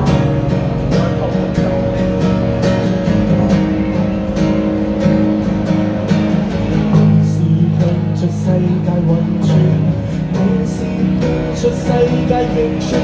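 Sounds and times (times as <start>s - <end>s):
guitars strumming chords: 0.0s - 13.0s
live band instrumental: 0.0s - 13.0s.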